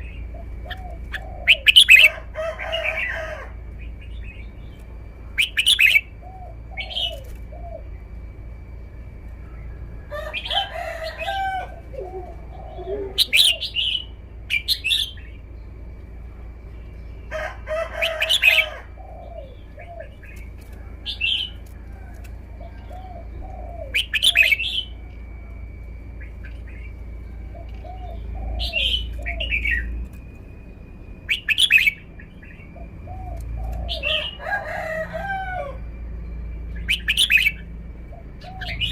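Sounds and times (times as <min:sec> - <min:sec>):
bird whistled phrases: 0:05.4 - 0:06.1, 0:12.0 - 0:15.3, 0:23.2 - 0:25.1, 0:27.7 - 0:30.0, 0:31.3 - 0:32.6, 0:36.8 - 0:37.7
lower warbling bird notes: 0:22.5 - 0:34.5.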